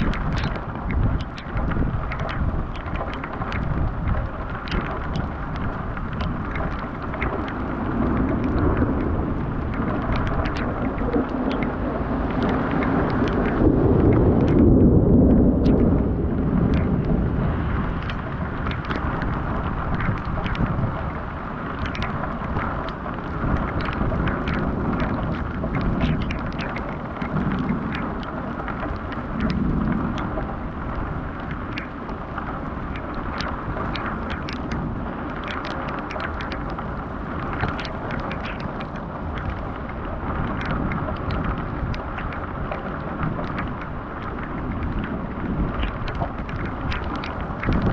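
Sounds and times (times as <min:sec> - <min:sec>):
raindrops tapping: 0:00.0 - 0:47.9
steady rain: 0:00.0 - 0:47.9
thunder rumbling: 0:00.0 - 0:47.9.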